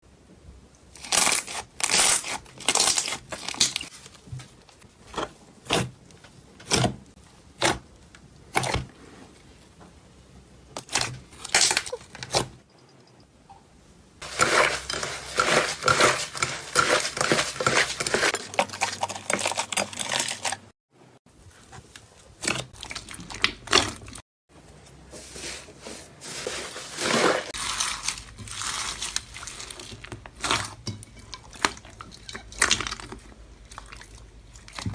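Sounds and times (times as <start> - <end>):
slime crackling and squishing: 0.9 - 6.0, 26.2 - 34.9.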